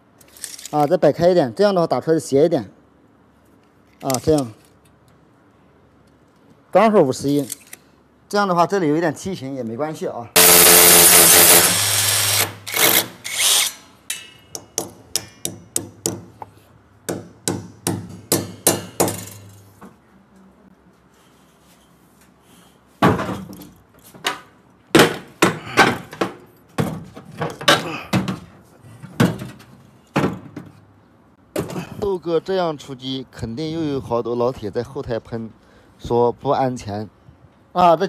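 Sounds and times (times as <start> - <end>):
power drill running: 10.4 - 13.8.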